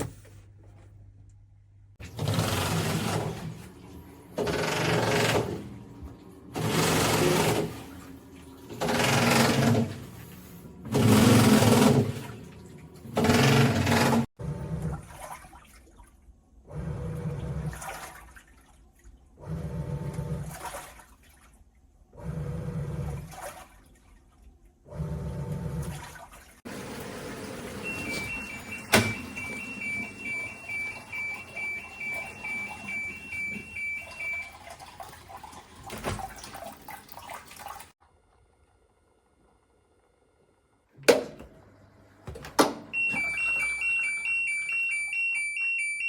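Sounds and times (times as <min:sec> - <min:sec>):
washing machine churning water: 0:01.9 - 0:39.0, 0:41.0 - 0:46.0
electronic two-tone beeping: 0:27.9 - 0:34.5, 0:43.0 - 0:46.0.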